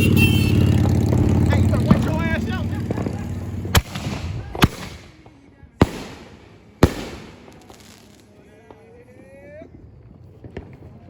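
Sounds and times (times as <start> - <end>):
fireworks bangs with echo: 2.8 - 8.8.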